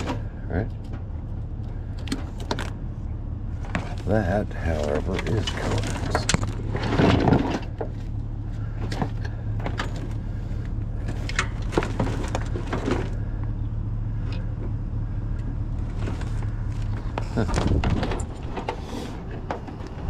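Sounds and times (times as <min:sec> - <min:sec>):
steady low hum: 0:00.0 - 0:20.0
wire and cable clicks and knocks: 0:05.0 - 0:07.9.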